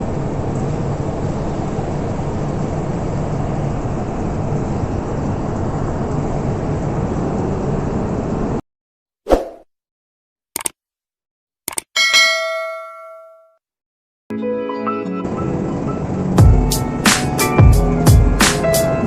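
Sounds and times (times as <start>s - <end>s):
metro train rumbling: 0.0s - 8.6s, 15.2s - 19.0s.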